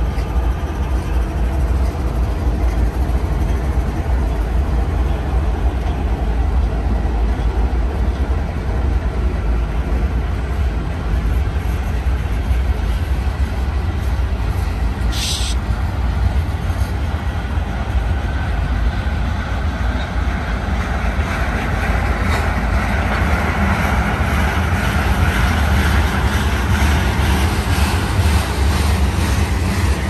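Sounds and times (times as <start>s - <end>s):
freight train wheels rumbling: 0.0s - 30.0s
short high squeal: 15.1s - 15.6s.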